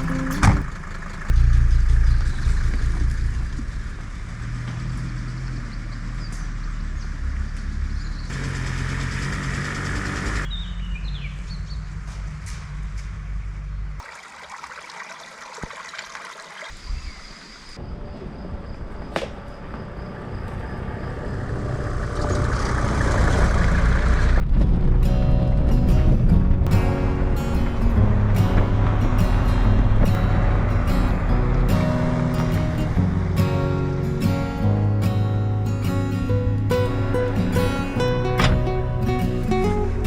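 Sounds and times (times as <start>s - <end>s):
birds chirping: 0.0s - 12.3s, 16.3s - 23.7s
diesel engine running: 0.0s - 14.0s, 19.5s - 40.0s.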